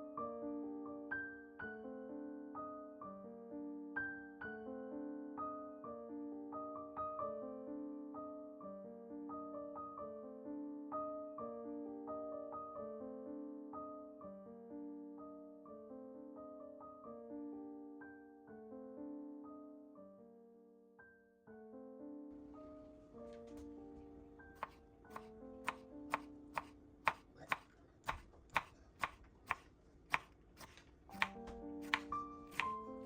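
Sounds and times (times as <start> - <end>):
soft piano music: 0.0 - 27.2, 31.1 - 33.0
knife chopping on cutting board: 24.6 - 33.0.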